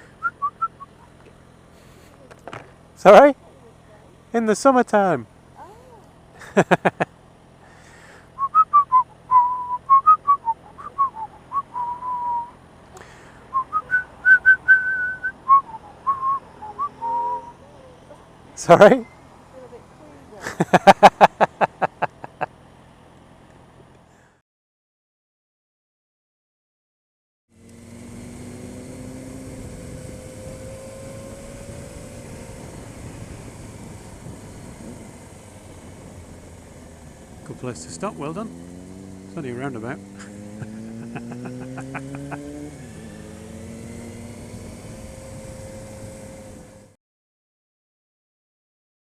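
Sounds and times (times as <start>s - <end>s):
wind and road noise: 0.0s - 24.3s, 27.5s - 47.0s
faint low engine hum: 0.0s - 24.4s, 27.6s - 47.0s
person whistling a tune: 0.2s - 0.9s, 8.4s - 12.5s, 13.5s - 17.6s.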